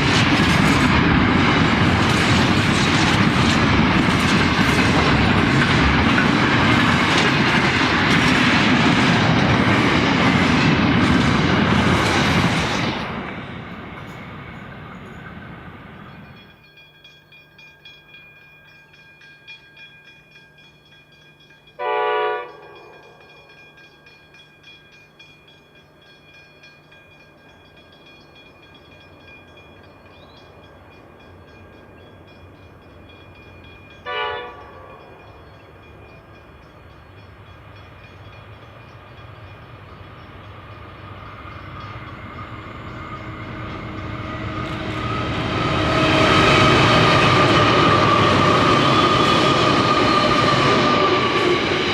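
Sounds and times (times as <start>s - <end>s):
train approaching: 0.0s - 51.9s
locomotive horn blasts: 21.8s - 23.0s, 34.1s - 34.9s.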